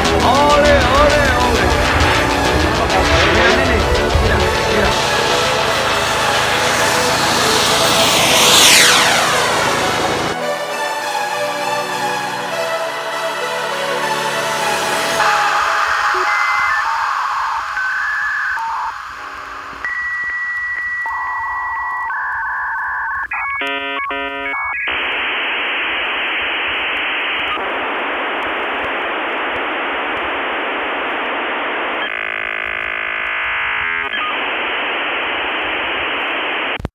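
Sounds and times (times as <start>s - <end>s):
electronic beeps and tones: 0.0s - 5.7s, 6.7s - 10.0s, 15.1s - 28.9s, 29.5s - 36.9s
warbling signal: 0.2s - 10.4s, 14.7s - 28.4s, 29.1s - 36.7s
electronic chirping: 15.1s - 27.6s, 31.6s - 35.8s.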